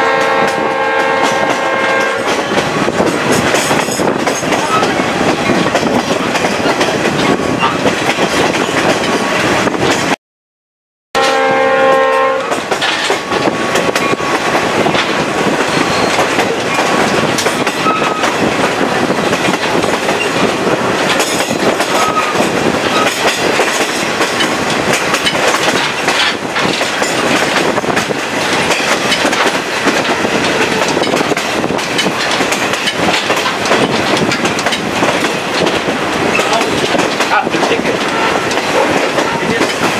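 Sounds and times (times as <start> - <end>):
locomotive horn: 0.0 - 2.4, 11.2 - 13.3, 38.0 - 39.7
train wheels rushing on rail: 0.0 - 10.2, 11.2 - 39.9.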